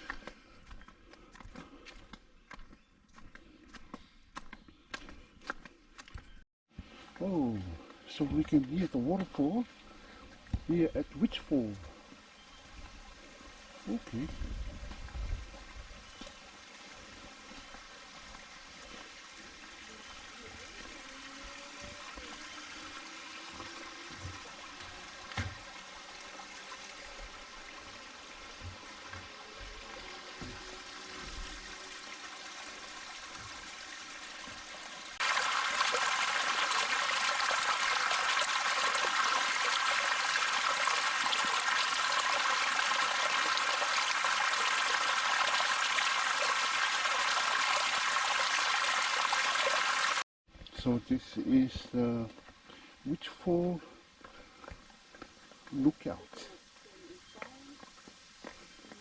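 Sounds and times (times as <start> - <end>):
small waterfall rushing: 15.4 - 50.2.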